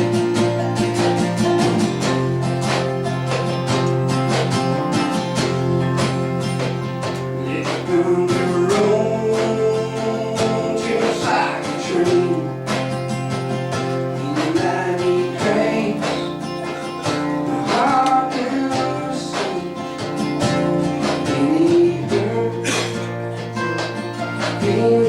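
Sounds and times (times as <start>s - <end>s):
strummed acoustic guitar: 0.0s - 25.0s
person singing: 1.0s - 2.6s, 7.4s - 13.0s, 13.9s - 25.0s.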